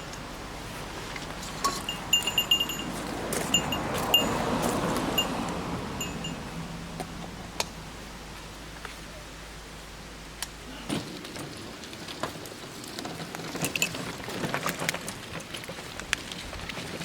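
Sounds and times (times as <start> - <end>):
light metallic jingling: 1.5 - 6.8.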